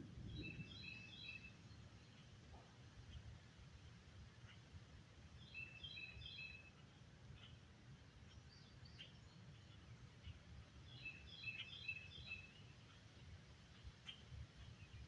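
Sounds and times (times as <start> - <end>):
songbird singing: 0.2 - 2.3, 5.4 - 6.6, 8.4 - 12.8.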